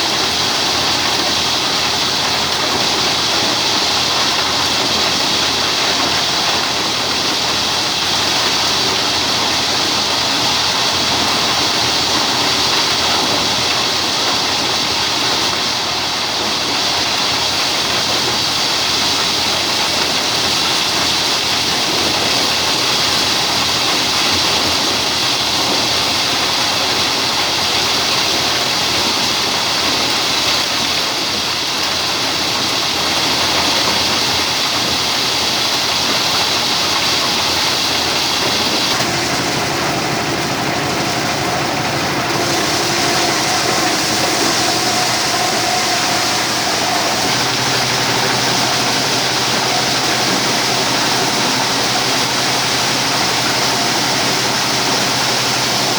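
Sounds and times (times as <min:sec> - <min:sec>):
diesel engine running machine: 0:00.0 - 0:29.0, 0:35.8 - 0:55.9
rushing mechanical noise: 0:37.9 - 0:55.9.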